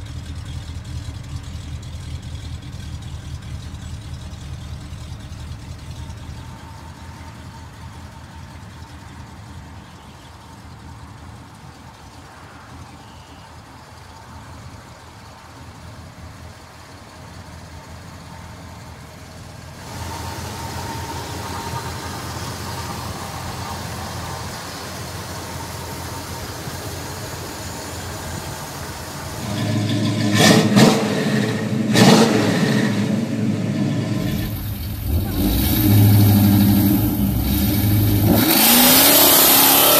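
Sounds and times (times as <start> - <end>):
car engine running: 0.0 - 39.9
car engine revving: 14.6 - 39.9.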